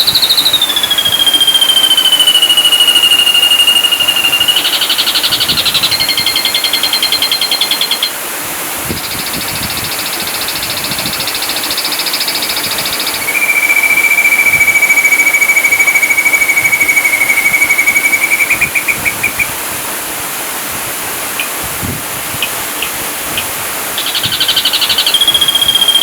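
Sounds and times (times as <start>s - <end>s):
bird singing rapid trills: 0.0s - 8.2s, 9.0s - 19.5s, 24.0s - 26.0s.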